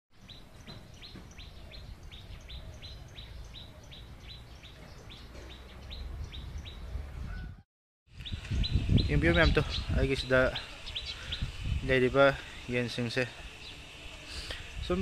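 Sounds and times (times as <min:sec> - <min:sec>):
small bird chirping: 0:00.2 - 0:11.8.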